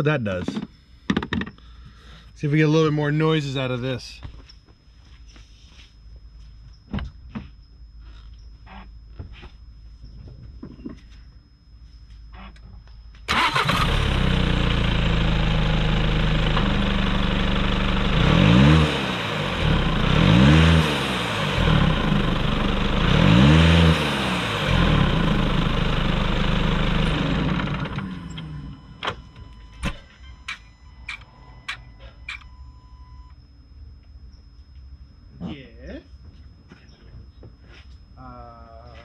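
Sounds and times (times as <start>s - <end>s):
diesel car engine idling and revving: 13.3s - 29.6s.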